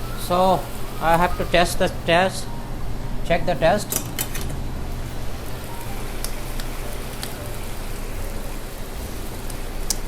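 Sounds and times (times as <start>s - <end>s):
curry simmering hiss: 5.0s - 10.0s.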